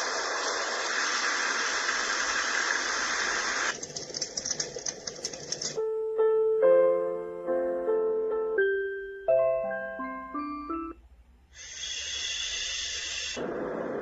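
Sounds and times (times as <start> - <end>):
bell-like lullaby melody: 5.8 - 11.0.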